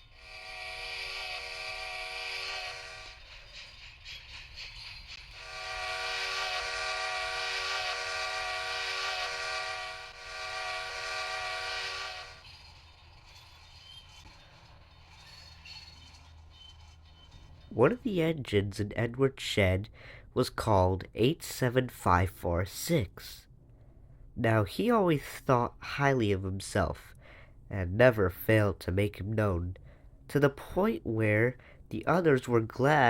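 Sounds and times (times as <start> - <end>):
train horn chord blasts: 0.2 - 3.2, 5.3 - 12.5.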